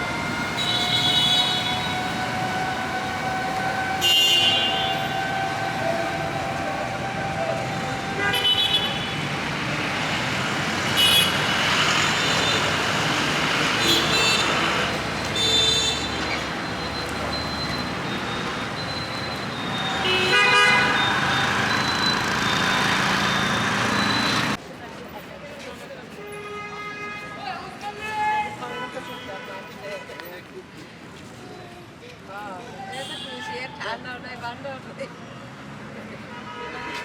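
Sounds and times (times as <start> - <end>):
road traffic: 0.0 - 37.0
vehicle horns honking: 0.5 - 9.4, 10.9 - 13.0, 13.7 - 16.3, 18.0 - 24.6, 33.0 - 33.5.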